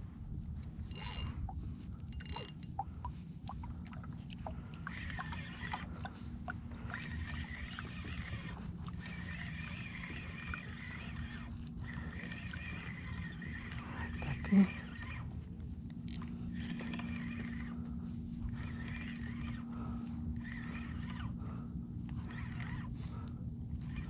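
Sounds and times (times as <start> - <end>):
wind: 0.0 - 24.0
fishing reel whining: 0.9 - 2.8, 4.9 - 6.0, 6.8 - 15.2, 16.0 - 21.5, 22.1 - 23.2, 23.8 - 24.0
light clicks: 2.1 - 2.8.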